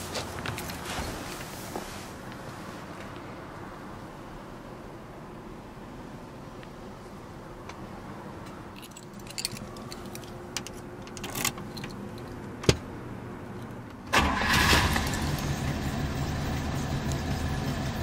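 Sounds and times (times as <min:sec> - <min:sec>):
keys jingling in ignition: 0:08.8 - 0:12.4
car engine starting and running: 0:09.3 - 0:18.0.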